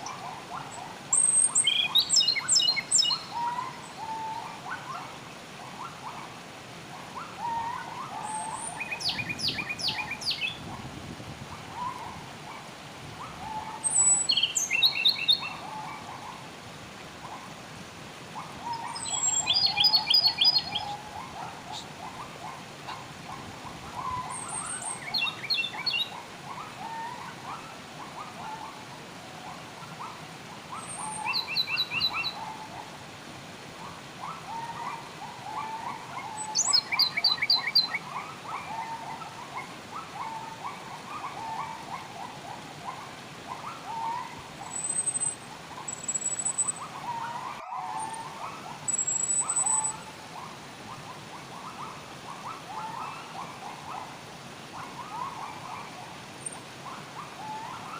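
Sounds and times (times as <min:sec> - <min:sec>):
low steady hiss: 0:00.0 - 0:57.9
birds chirping: 0:01.1 - 0:05.0, 0:07.4 - 0:10.7, 0:13.3 - 0:16.2, 0:18.7 - 0:22.2, 0:24.0 - 0:26.2, 0:36.3 - 0:38.0, 0:43.6 - 0:50.0
bird trills: 0:44.7 - 0:46.9, 0:48.9 - 0:50.0
high bird whistles: 0:48.9 - 0:50.0.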